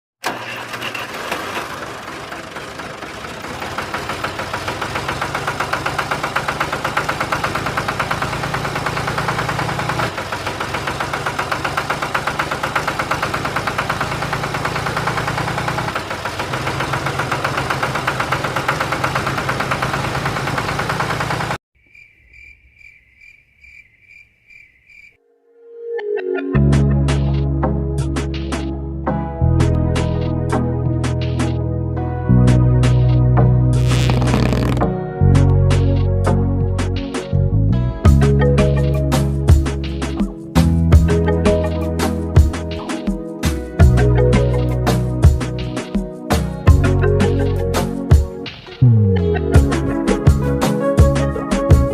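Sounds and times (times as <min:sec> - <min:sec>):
music: 0:25.4 - 0:51.9
toy motor buzzing: 0:33.8 - 0:34.8.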